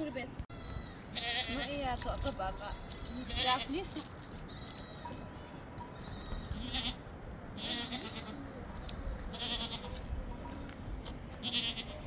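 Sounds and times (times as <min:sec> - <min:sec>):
goats bleating: 0:00.6 - 0:01.8, 0:07.6 - 0:08.4, 0:11.4 - 0:12.0.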